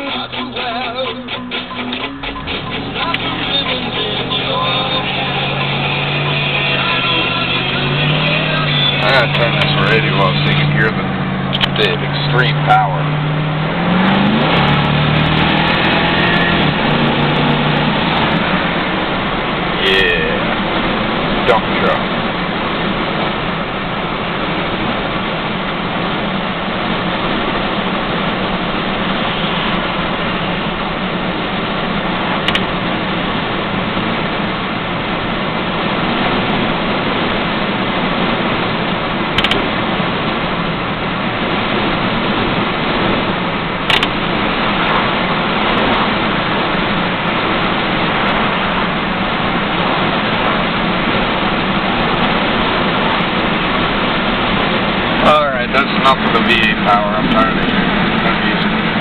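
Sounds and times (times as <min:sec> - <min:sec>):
road noise: 0:00.0 - 0:59.0
truck engine running: 0:00.0 - 0:59.0
brief clicks: 0:32.5 - 0:32.7, 0:39.4 - 0:39.6, 0:43.9 - 0:44.2.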